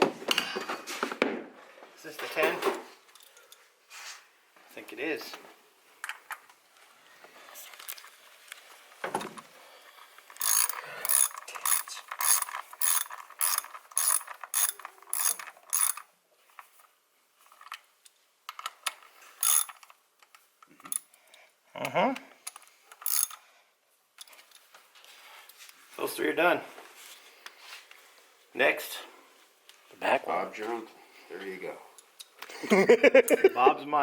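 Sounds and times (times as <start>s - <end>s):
ratchet wrench clicking: 10.4s - 16.1s, 19.4s - 19.8s, 22.5s - 23.4s.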